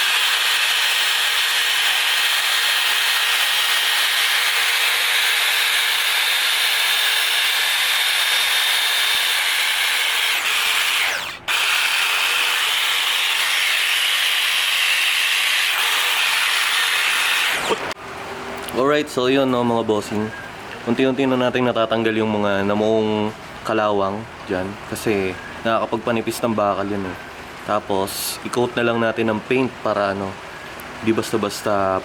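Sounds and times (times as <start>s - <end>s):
power tool grinding metal: 0.0s - 18.0s.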